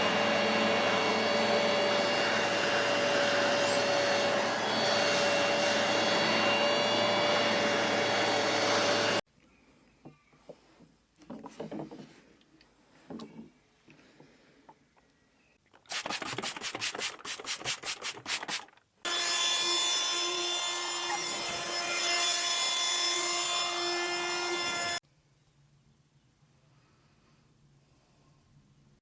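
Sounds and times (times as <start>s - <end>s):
carpet washing machine motor whine: 0.0s - 9.2s
scrubbing strokes: 15.9s - 18.8s.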